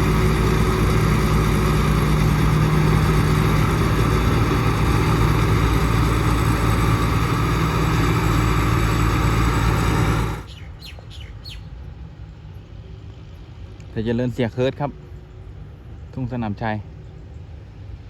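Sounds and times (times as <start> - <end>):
combine harvester running: 0.0 - 10.7.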